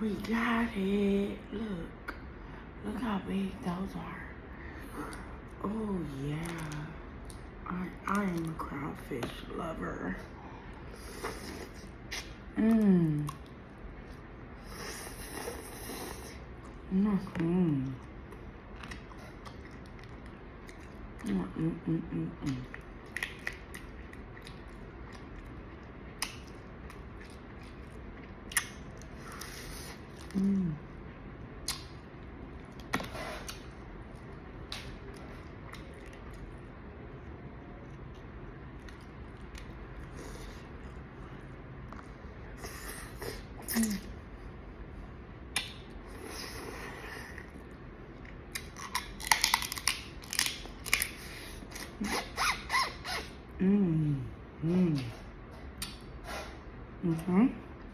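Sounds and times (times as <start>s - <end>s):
soft chewing: 4.6s - 9.5s, 10.1s - 53.4s
shells cracking and snapping: 48.6s - 51.2s.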